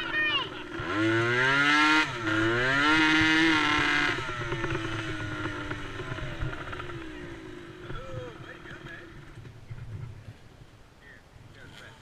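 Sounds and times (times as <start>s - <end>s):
small racing engine revving: 0.0s - 9.4s.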